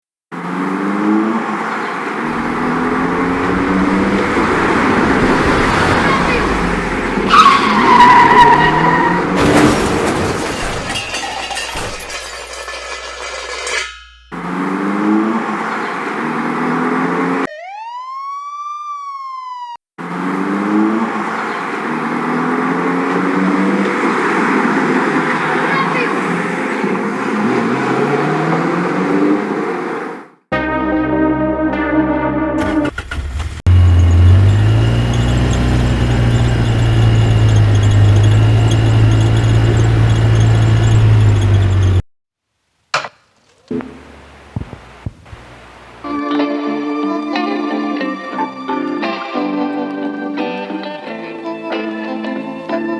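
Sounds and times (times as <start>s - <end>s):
car engine accelerating: 0.3s - 10.5s, 14.3s - 17.5s, 20.0s - 30.3s, 32.6s - 42.0s
siren wail: 0.7s - 9.6s, 14.6s - 26.6s.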